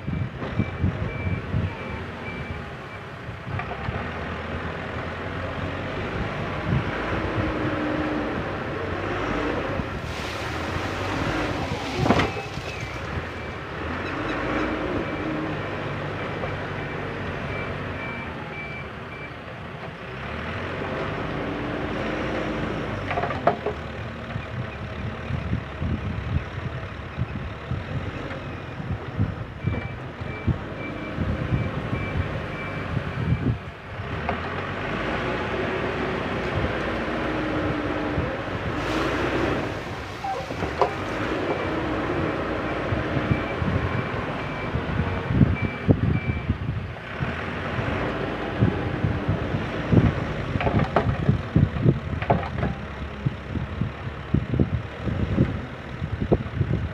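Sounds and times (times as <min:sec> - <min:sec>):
diesel engine running under load: 0:00.0 - 0:56.9
reversing alarm beeping: 0:42.6 - 0:46.6
sharp knocks and clatter: 0:50.6 - 0:52.9.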